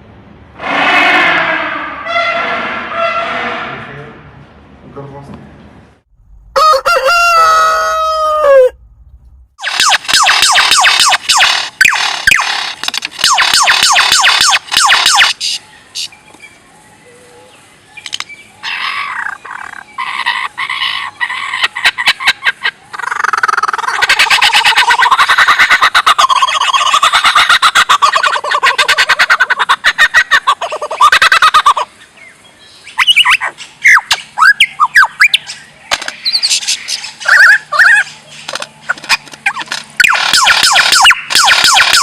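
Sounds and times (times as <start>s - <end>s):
sharp bird chirps: 13.2s - 17.2s, 30.6s - 38.5s, 40.0s - 42.0s
bird calls: 13.3s - 42.0s.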